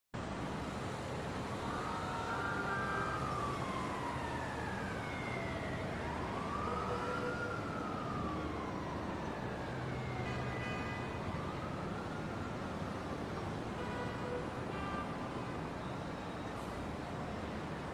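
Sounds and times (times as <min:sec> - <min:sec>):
siren wailing: 0:01.4 - 0:13.3.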